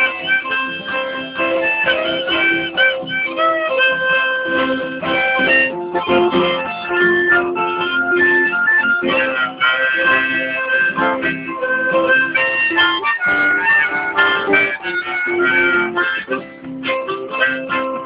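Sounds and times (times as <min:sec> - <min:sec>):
harmonica: 0:00.0 - 0:18.0
strummed acoustic guitar: 0:00.0 - 0:18.0.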